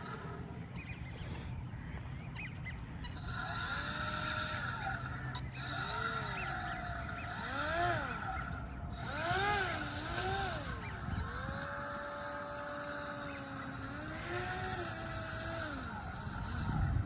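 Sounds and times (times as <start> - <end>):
electric motor and propeller whining: 0.0 - 17.0.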